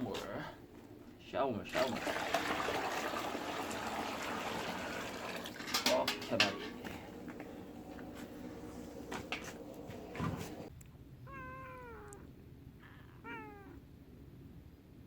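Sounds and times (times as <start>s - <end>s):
steady hum: 6.0s - 10.7s
cat meowing: 11.2s - 13.8s.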